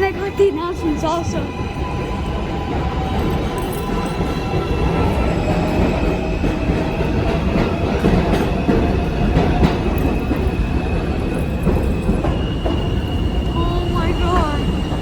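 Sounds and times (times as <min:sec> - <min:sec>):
train cars rumbling: 0:00.0 - 0:15.0
subway train motor tone: 0:12.0 - 0:15.0.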